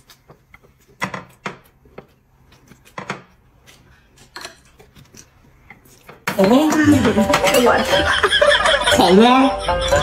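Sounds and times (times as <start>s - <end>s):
chopsticks tapping ceramic dishes: 6.3s - 9.0s.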